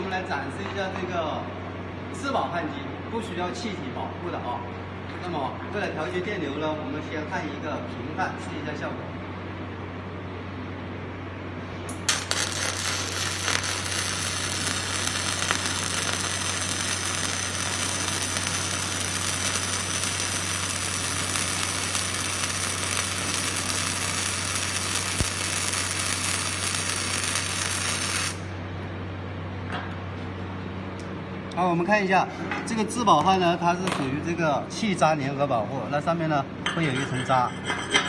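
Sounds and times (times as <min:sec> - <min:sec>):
low hum: 0:09.9 - 0:31.0
welding arc crackling and sizzling: 0:11.9 - 0:28.6.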